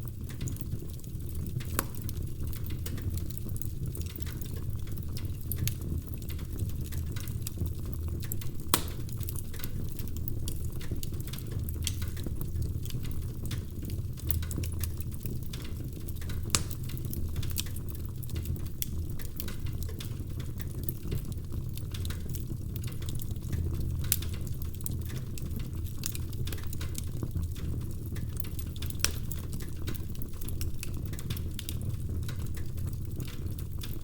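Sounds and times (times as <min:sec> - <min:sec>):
fire crackling and snapping: 0:00.0 - 0:34.0
fire rumbling in fireplace: 0:00.0 - 0:34.0
loud pop from fire: 0:08.7 - 0:09.1.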